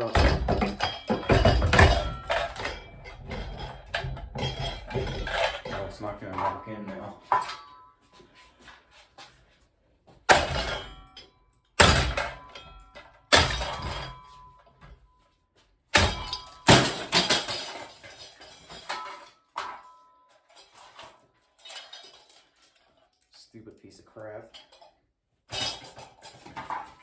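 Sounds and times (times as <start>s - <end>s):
metal ceiling fan being struck: 0.0s - 2.9s.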